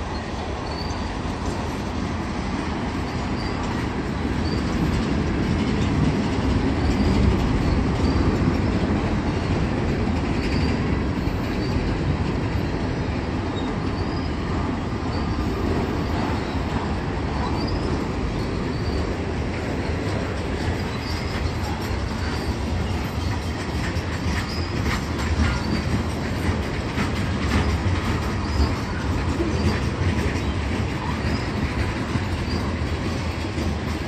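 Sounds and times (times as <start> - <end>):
train rumbling past: 0.0 - 34.0
short high wheel squeals: 0.1 - 1.2, 3.0 - 3.8, 4.4 - 4.9, 10.4 - 11.9, 13.5 - 19.2, 20.7 - 26.0, 27.5 - 33.3.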